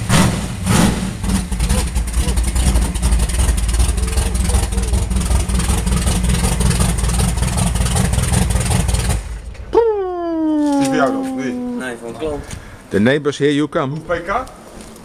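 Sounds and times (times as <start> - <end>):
vee eight engine idling rumble: 1.2 - 12.9.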